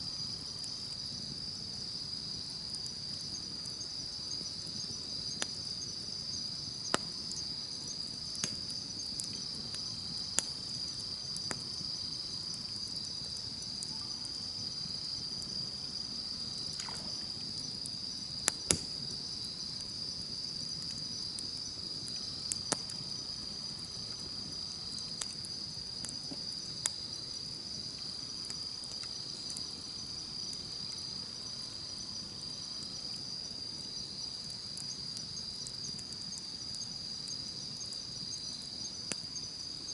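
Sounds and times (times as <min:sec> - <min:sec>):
campfire crackling: 0:00.0 - 0:39.9
insects chirping: 0:00.0 - 0:39.9
fire popping: 0:00.2 - 0:31.2.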